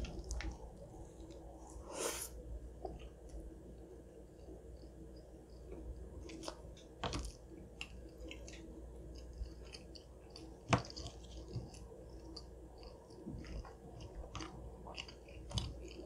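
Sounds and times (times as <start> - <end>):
close chewing with crunches: 5.7 - 16.0.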